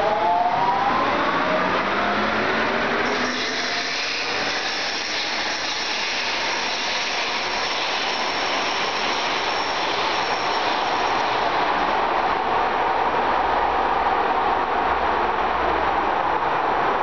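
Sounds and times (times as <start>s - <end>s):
train rolling rumble: 1.3s - 17.0s
light-rail train motor whine: 1.8s - 14.8s.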